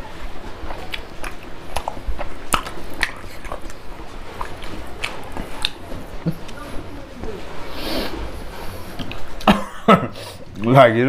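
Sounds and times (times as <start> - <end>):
wet chewing smacks and clicks: 0.4 - 6.9, 8.9 - 9.5.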